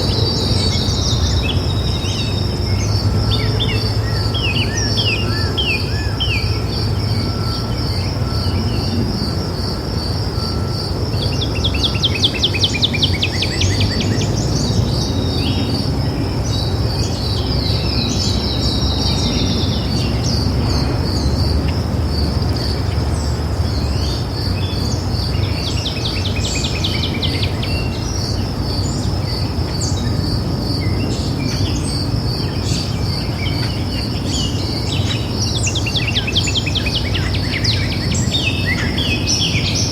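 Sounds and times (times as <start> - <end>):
high insect chirping: 0.0 - 39.9
birds singing trilled phrases: 22.5 - 39.9.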